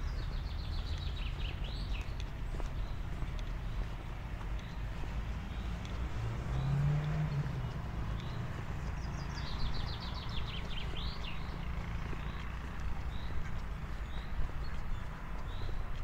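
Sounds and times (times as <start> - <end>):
songbird trill: 0.0 - 16.0.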